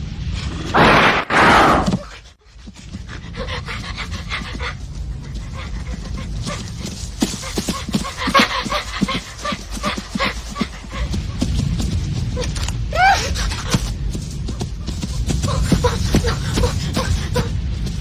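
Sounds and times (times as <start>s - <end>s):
dog panting: 2.4s - 11.3s.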